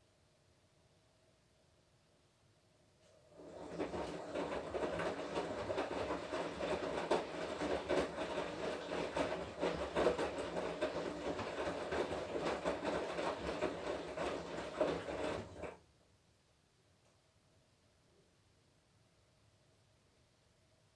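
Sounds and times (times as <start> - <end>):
washing machine drum churning: 3.3 - 15.8.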